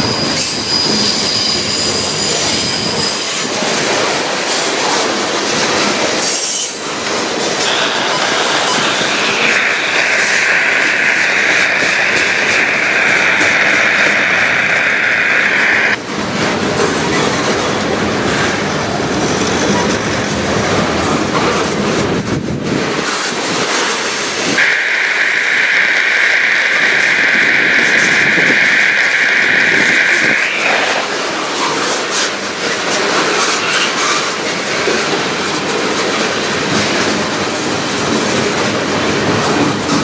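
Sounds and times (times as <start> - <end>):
high wheel squeal: 0.0 - 3.6, 6.2 - 16.0
train wheels rumbling and clattering: 0.0 - 24.6, 25.4 - 40.0.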